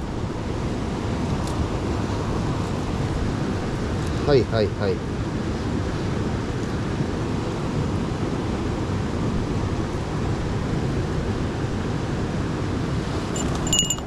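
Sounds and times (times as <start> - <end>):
stream water rushing: 13.0 - 14.0.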